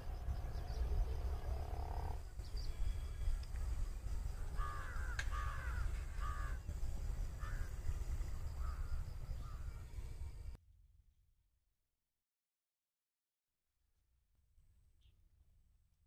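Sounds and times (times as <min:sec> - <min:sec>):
wind rumble on microphone: 0:00.0 - 0:10.6.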